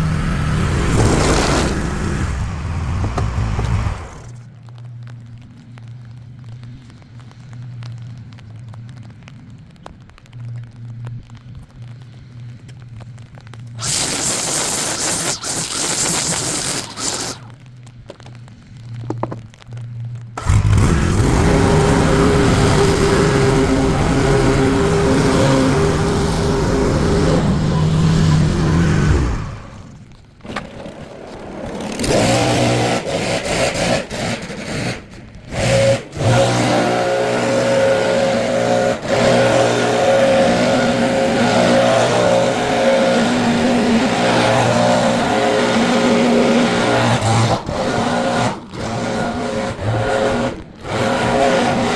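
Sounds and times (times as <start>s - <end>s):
small petrol engine running: 0.0s - 4.5s, 13.8s - 17.5s, 20.4s - 51.9s.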